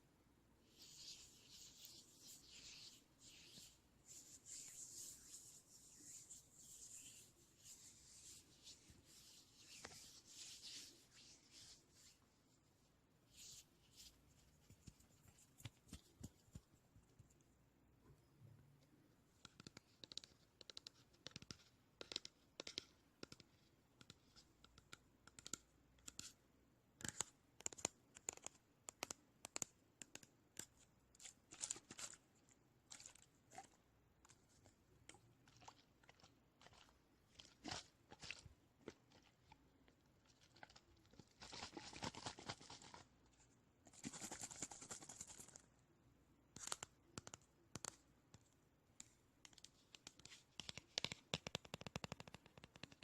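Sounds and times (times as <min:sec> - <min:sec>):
scratchy rubbing: 0:00.7 - 0:12.2, 0:43.9 - 0:45.6
quick taps and crisp clicks: 0:46.6 - 0:53.0.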